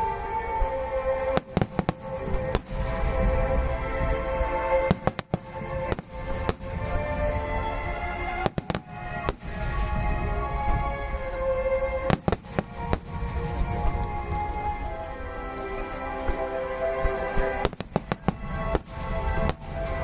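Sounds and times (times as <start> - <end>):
fireworks bangs: 1.3 - 3.4, 4.8 - 7.6, 8.2 - 10.8, 12.0 - 14.6, 17.0 - 20.0.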